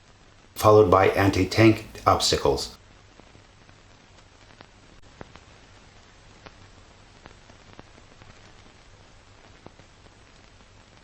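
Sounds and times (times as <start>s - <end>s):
film soundtrack hiss and hum: 0.0s - 3.0s.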